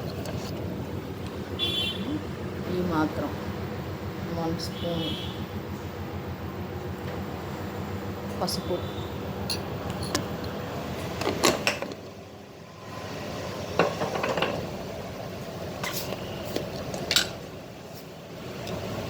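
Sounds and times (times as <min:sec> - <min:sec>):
metal spoon clinking on pot: 0:09.5 - 0:10.2.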